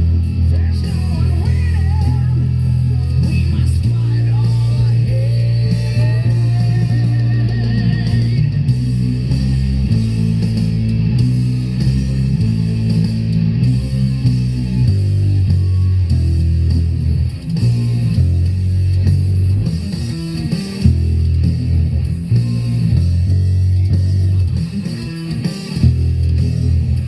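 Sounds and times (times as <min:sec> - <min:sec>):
electric bass guitar low notes: 0:00.0 - 0:27.0.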